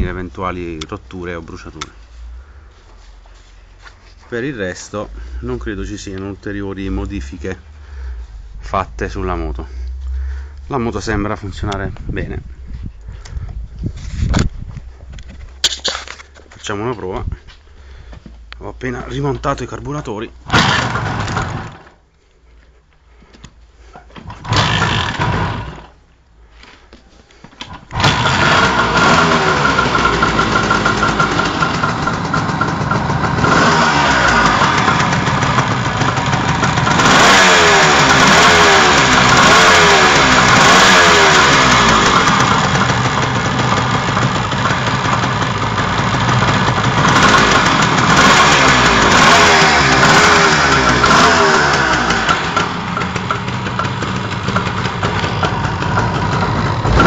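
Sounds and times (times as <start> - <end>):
motorcycle engine starting and revving: 20.4 - 22.0, 24.2 - 26.0, 27.7 - 57.0.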